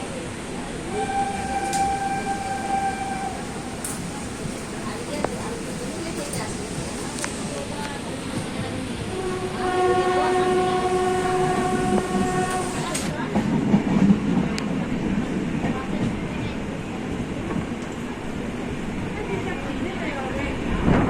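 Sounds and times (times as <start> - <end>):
moving train rumble: 0.0 - 21.0
train horn blast: 0.9 - 3.7, 9.1 - 13.1.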